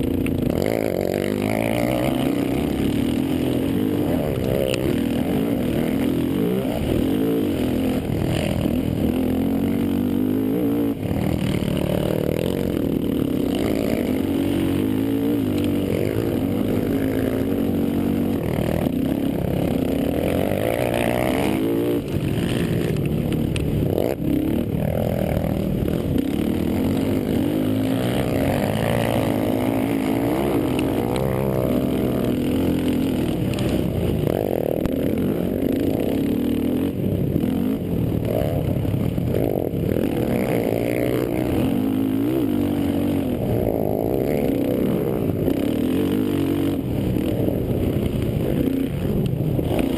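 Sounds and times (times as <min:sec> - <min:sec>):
quad engines revving: 0:00.0 - 0:49.9.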